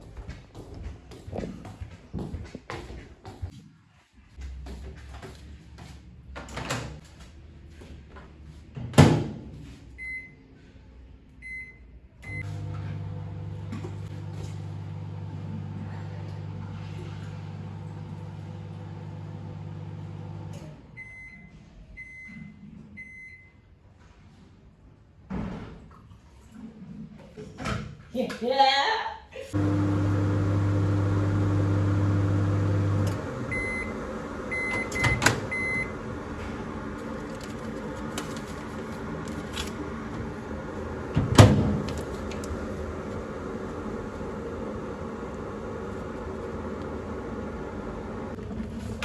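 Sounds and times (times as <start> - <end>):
microwave end beeps: 11.4 - 12.8, 29.6 - 36.1
microwave humming: 12.2 - 21.3, 29.5 - 49.0
microwave keypad beeps: 33.5 - 36.0
microwave door shutting: 34.5 - 36.0, 41.1 - 42.7.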